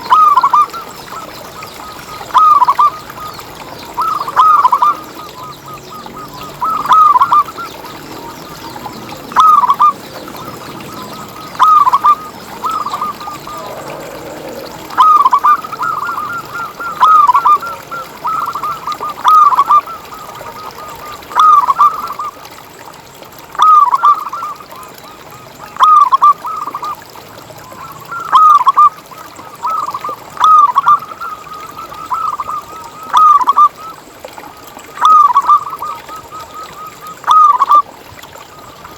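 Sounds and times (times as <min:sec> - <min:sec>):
dove cooing: 0:06.2 - 0:22.2.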